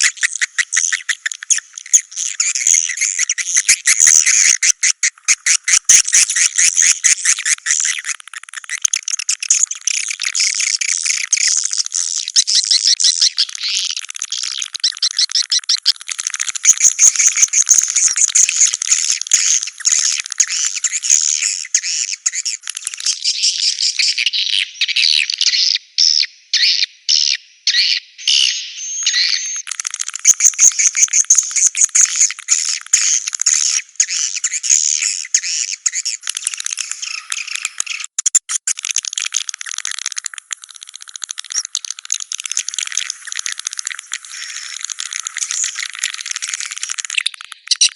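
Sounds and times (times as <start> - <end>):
swiftlets twittering: 0.0 - 23.2, 28.8 - 47.9.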